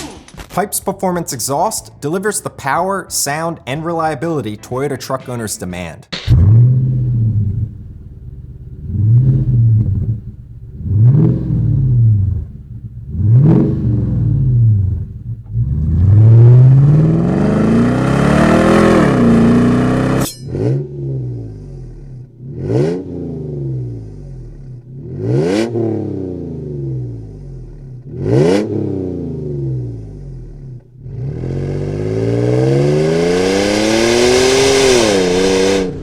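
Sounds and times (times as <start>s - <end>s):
pickup engine revving: 6.3s - 21.9s, 31.0s - 36.0s.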